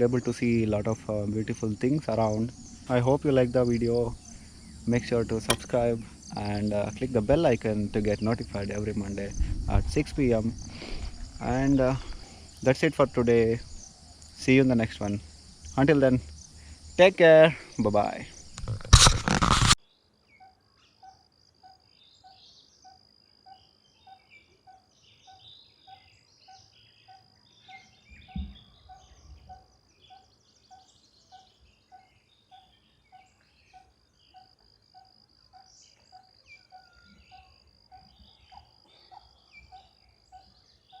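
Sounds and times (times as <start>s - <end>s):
insect drone: 0.0s - 41.0s
bird chirps: 20.2s - 41.0s.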